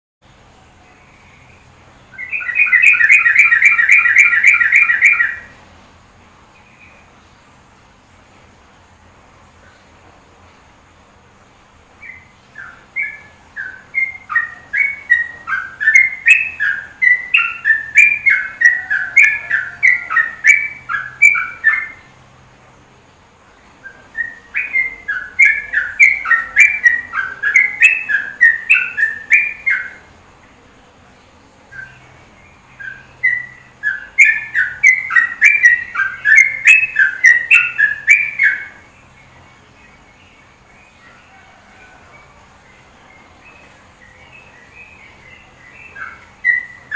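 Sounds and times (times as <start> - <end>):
songbird whistling song: 0.9 - 5.6, 12.0 - 22.1, 23.8 - 30.1, 31.6 - 46.9.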